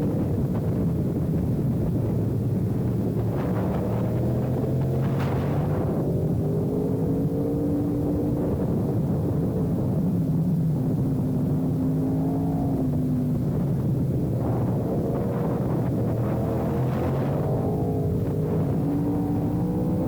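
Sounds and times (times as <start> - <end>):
motorcycle engines revving: 10.9 - 20.0.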